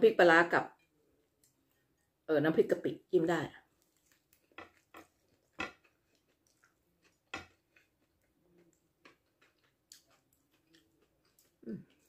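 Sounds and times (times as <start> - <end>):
person chewing: 3.7 - 12.0.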